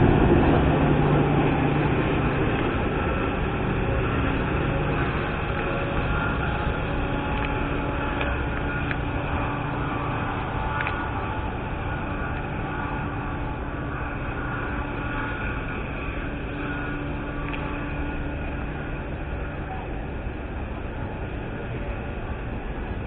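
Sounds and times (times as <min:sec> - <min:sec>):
diesel train rumbling: 0:00.0 - 0:23.0.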